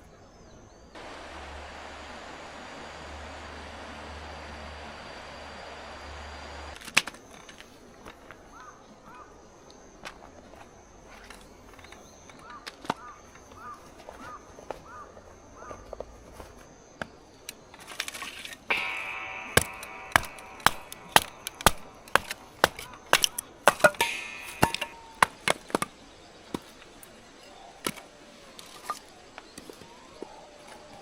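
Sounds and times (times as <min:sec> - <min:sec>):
drawn-out pitched sound: 0:01.0 - 0:06.8, 0:18.7 - 0:25.5.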